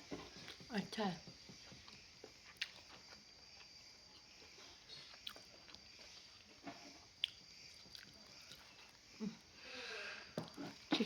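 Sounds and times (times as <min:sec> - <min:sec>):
person chewing food: 0:01.8 - 0:09.0.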